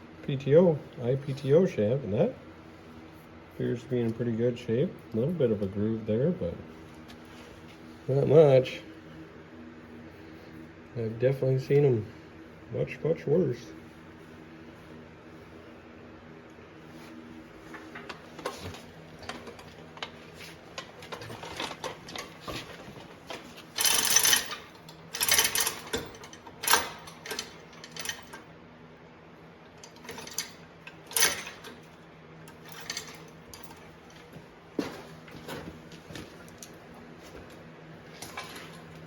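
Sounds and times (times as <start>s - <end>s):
metal rattling clanks: 23.7s - 28.4s, 29.8s - 34.0s
metal tools clinking: 23.8s - 28.4s, 29.8s - 31.9s, 32.5s - 35.6s, 38.1s - 39.0s.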